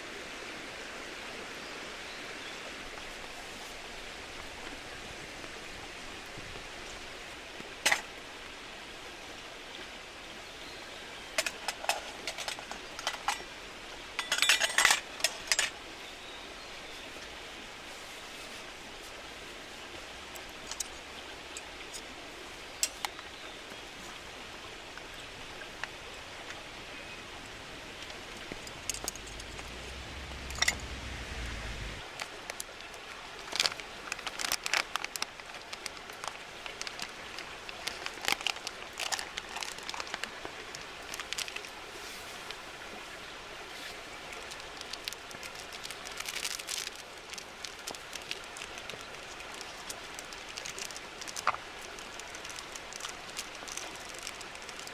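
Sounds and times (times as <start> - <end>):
steady rain falling: 0.0 - 54.9
low rumble: 28.7 - 32.0.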